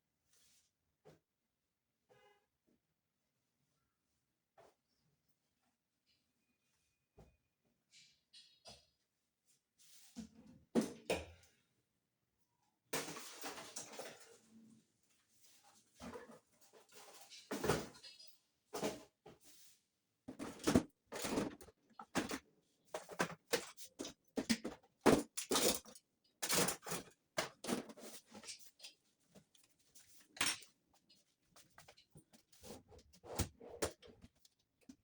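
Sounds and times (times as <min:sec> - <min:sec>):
objects knocking and scraping: 0:15.8 - 0:19.6, 0:20.3 - 0:35.0.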